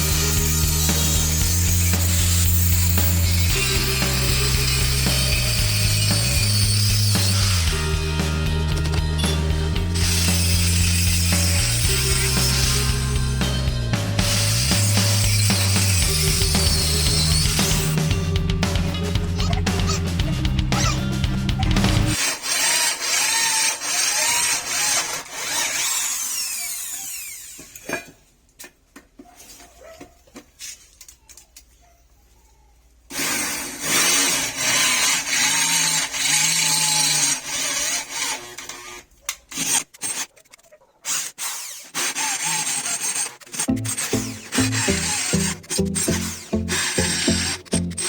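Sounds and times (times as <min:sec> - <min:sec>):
handheld power tool running: 0:00.0 - 0:13.4, 0:41.1 - 0:48.0
knocks and clicks: 0:43.7 - 0:48.0.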